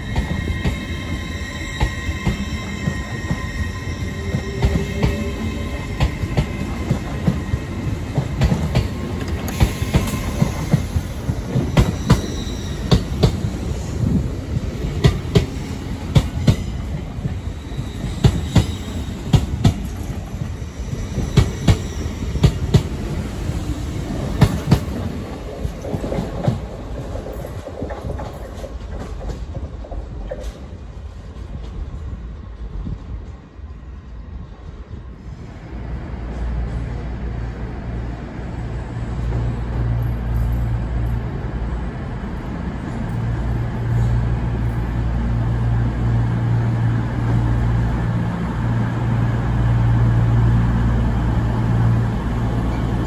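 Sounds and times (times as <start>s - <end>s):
high train whine: 0.0s - 53.0s
train rumbling past: 0.0s - 53.0s.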